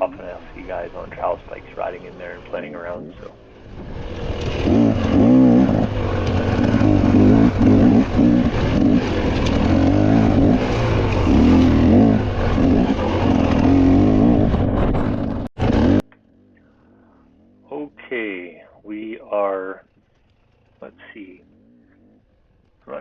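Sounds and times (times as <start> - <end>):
wind and tyre rumble: 0.0 - 16.4
bike freewheel buzzing whir: 3.4 - 16.5.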